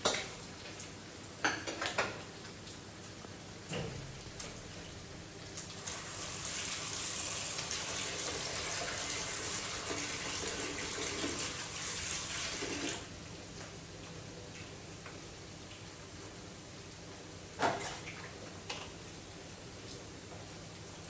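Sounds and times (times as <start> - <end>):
water running: 3.7 - 13.7.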